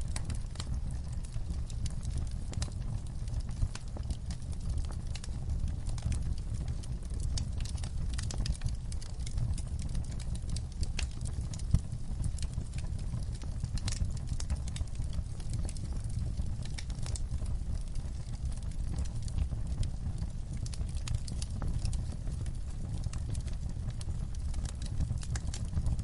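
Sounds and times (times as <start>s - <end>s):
fireplace crackling: 0.0s - 26.0s
low steady rumble: 0.0s - 26.0s.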